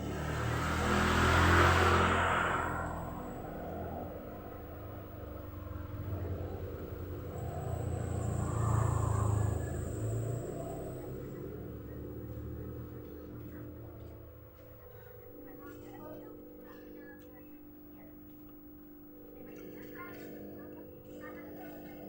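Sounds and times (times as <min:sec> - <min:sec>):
vehicle engine rumble passing: 0:00.0 - 0:15.8.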